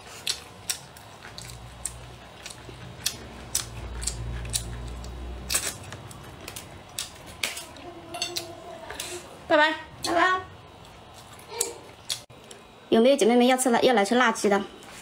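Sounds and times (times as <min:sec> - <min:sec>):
person gnawing and chewing: 0:00.0 - 0:09.2, 0:10.7 - 0:12.7.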